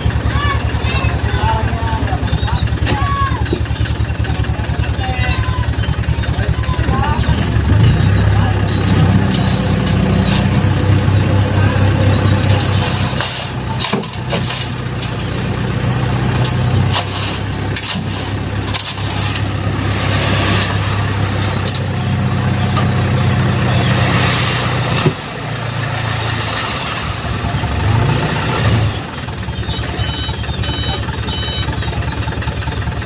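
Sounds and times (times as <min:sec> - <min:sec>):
diesel truck engine running: 0:00.0 - 0:33.0
sand sliding off truck bed: 0:16.8 - 0:21.1.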